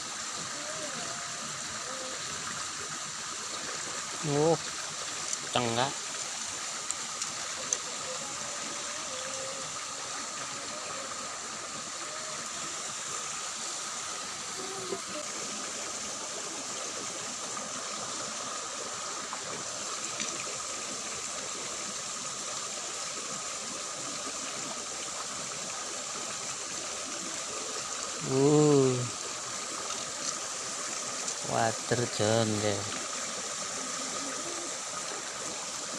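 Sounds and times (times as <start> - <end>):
water flowing along a ditch: 0.0 - 35.9
person calling out loudly: 28.2 - 29.2.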